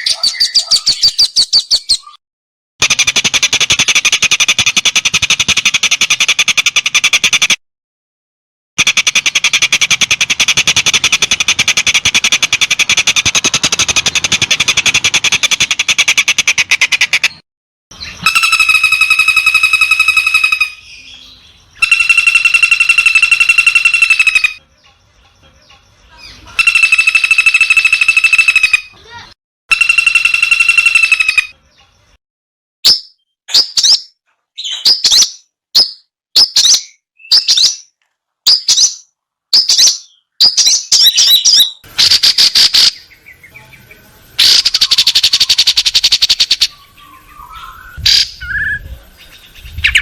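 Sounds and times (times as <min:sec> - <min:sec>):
rattling bird call notes: 0:08.8 - 0:17.4, 0:18.2 - 0:20.9, 0:21.8 - 0:24.6, 0:26.6 - 0:31.6
held bird notes: 0:18.0 - 0:31.9.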